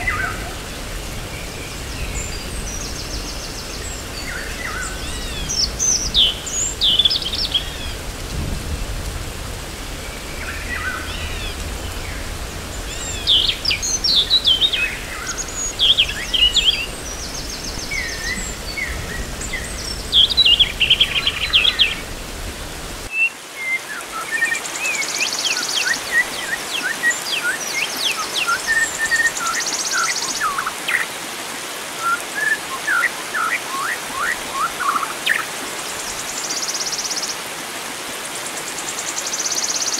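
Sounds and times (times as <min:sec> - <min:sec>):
birds chirping and whistling: 0:00.0 - 0:08.2, 0:09.9 - 0:22.3
flowing water: 0:00.0 - 0:39.9
low rumble: 0:07.1 - 0:23.1.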